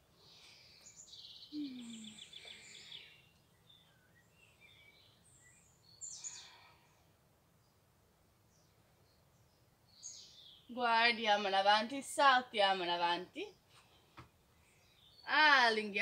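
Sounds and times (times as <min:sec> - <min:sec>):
bird chirps: 0:00.4 - 0:06.6.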